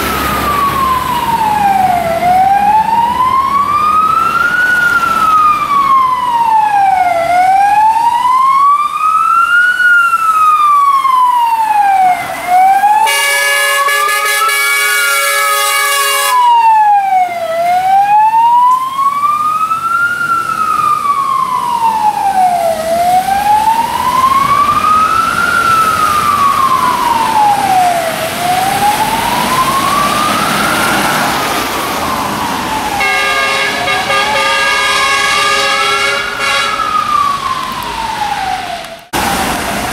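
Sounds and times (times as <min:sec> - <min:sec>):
fire engine siren wailing: 0:00.0 - 0:39.9
fire truck horn: 0:12.2 - 0:16.7, 0:32.9 - 0:37.2.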